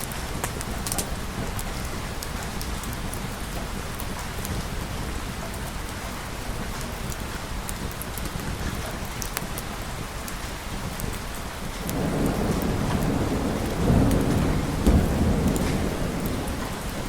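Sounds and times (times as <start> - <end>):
sharp ticks and crackles: 0.0 - 4.7, 6.7 - 17.0
heavy rain falling: 0.0 - 17.0.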